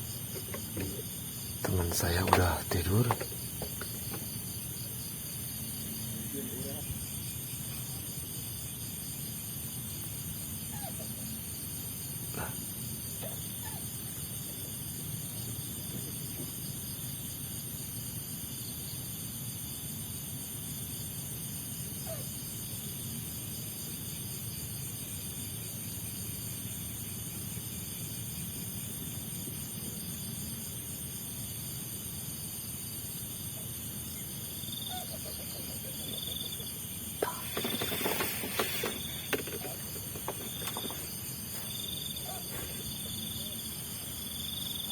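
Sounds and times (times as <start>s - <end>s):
even hiss: 0.0s - 9.6s, 33.8s - 44.9s
insects chirring: 0.0s - 44.9s.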